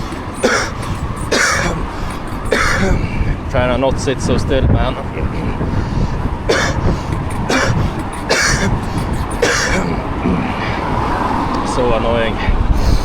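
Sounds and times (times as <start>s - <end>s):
man coughing: 0.0s - 3.5s, 5.4s - 10.9s.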